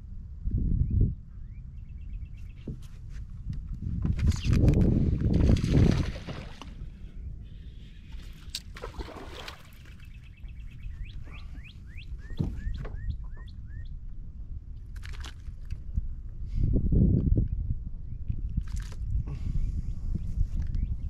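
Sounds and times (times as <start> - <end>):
wind rumble: 0.0 - 21.0
bird chirping: 9.7 - 14.0.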